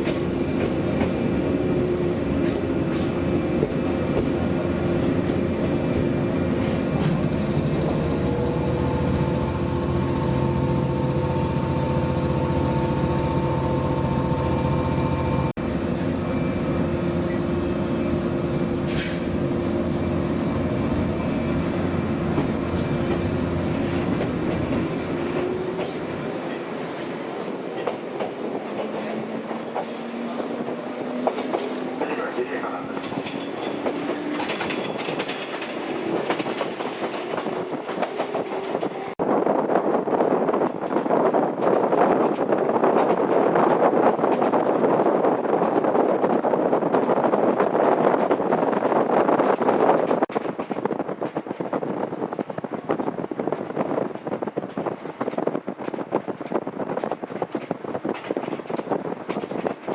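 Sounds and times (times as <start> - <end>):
electric train humming: 0.0 - 39.1.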